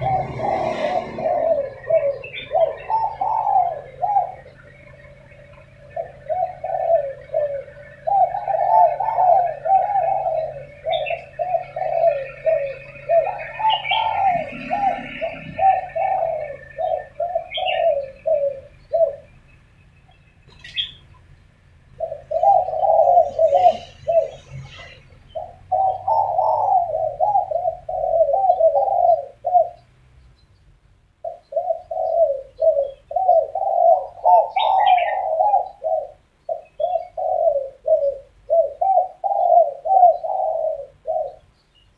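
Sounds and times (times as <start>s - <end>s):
doves cooing: 0.0s - 30.0s, 31.2s - 41.7s
faint small bird chirps: 10.8s - 21.4s.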